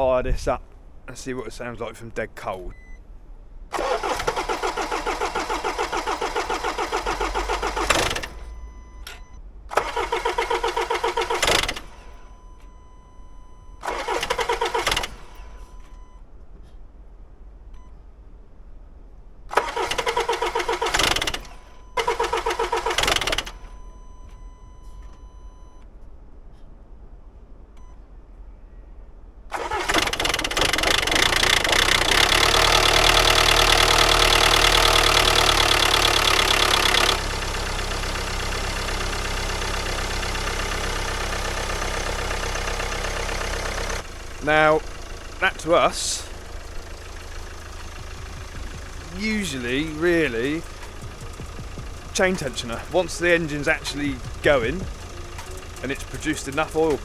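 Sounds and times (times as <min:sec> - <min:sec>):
diesel engine running loudly: 0:03.7 - 0:12.3, 0:19.5 - 0:23.8, 0:29.5 - 0:57.0
starter motor cranking: 0:03.7 - 0:12.4, 0:13.8 - 0:16.0, 0:19.5 - 0:24.2, 0:29.5 - 0:57.0.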